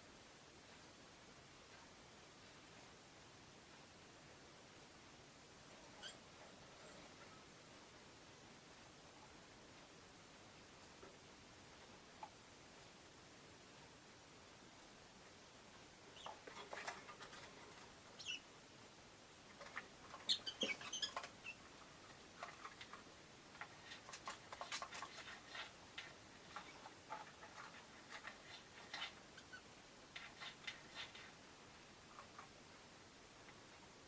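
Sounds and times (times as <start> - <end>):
lovebirds chirping: 16.1 - 16.9, 18.1 - 18.5, 20.1 - 21.7.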